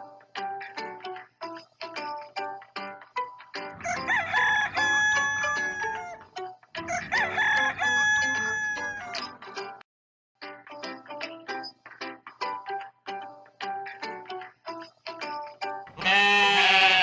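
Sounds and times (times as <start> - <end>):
plucked background music: 0.0 - 9.8, 10.4 - 17.0
rooster crowing: 3.8 - 9.3.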